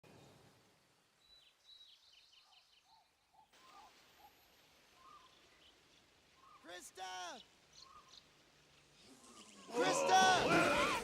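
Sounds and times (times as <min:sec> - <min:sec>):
birds chirping: 0:01.1 - 0:11.0
whistled bird notes: 0:06.4 - 0:06.7.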